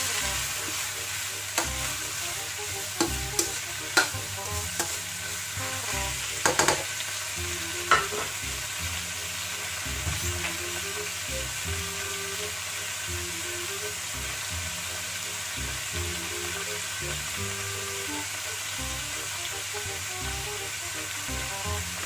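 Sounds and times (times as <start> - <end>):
vegetables sizzling in a wok: 0.0 - 22.0
metal spoon scraping a pan: 1.6 - 5.4, 7.9 - 8.3.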